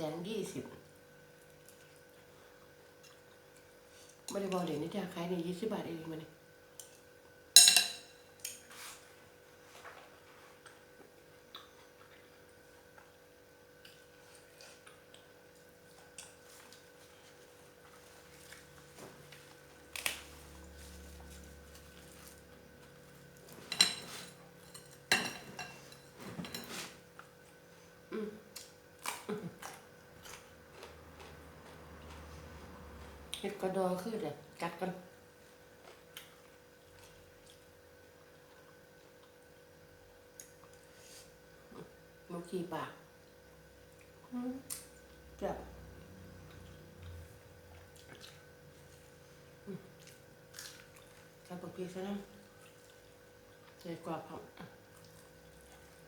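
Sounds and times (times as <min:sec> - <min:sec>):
dishes and utensils clinking: 0:07.6 - 0:08.2, 0:23.6 - 0:26.9
mouth sounds of eating: 0:28.0 - 0:30.6.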